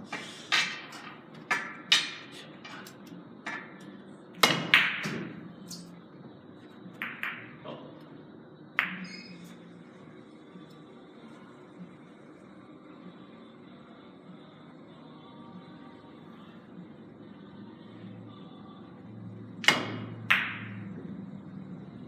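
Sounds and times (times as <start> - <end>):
cue striking billiard ball: 4.4 - 5.4, 7.0 - 7.6.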